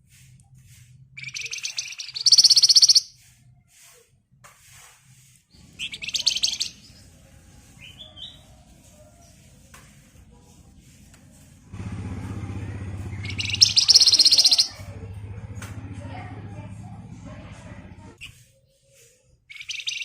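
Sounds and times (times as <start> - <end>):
songbird rattling trill: 1.2 - 3.2, 5.6 - 7.1, 13.0 - 14.9, 19.5 - 20.0
low background rumble: 10.3 - 18.2.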